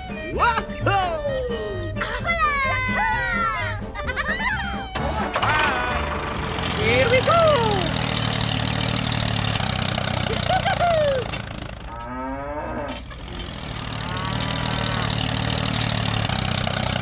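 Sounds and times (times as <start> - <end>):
small engine running: 4.1 - 12.1, 12.9 - 17.0
cow mooing: 11.8 - 16.3.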